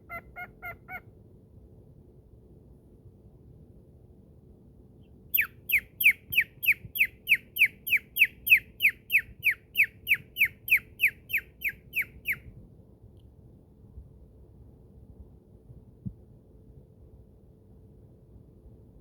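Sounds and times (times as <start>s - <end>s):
cockatiel chirping: 5.4s - 12.4s.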